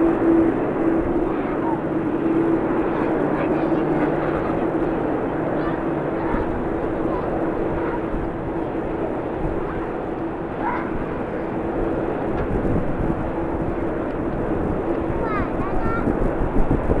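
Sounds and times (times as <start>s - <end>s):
jet engines humming: 0.0s - 17.0s
wind rumble on microphone: 0.0s - 17.0s.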